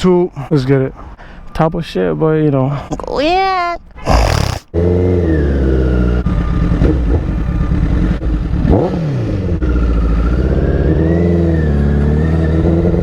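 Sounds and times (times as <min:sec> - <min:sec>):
motorcycle engine accelerating: 0:04.7 - 0:13.0.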